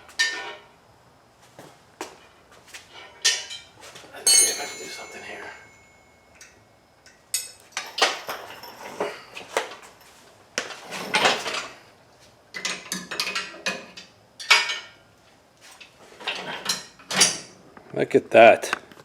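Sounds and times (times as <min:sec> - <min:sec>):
metal parts clanking: 0:03.2 - 0:10.0, 0:10.7 - 0:11.8, 0:16.2 - 0:17.5.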